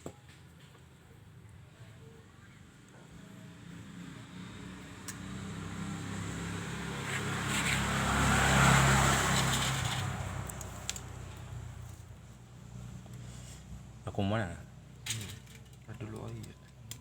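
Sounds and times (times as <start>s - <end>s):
motor vehicle passing by: 3.0s - 15.0s.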